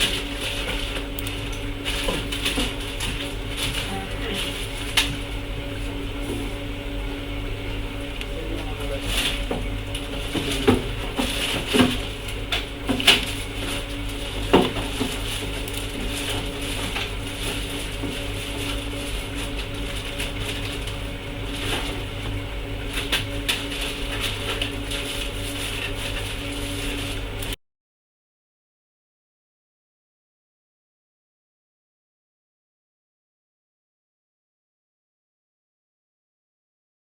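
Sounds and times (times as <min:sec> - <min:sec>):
steady electrical hum: 0:00.0 - 0:27.6.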